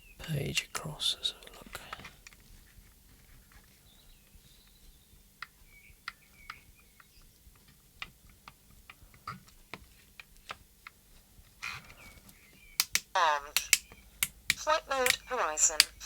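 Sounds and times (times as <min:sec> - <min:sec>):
plastic button and switch clicks: 0:12.8 - 0:16.0.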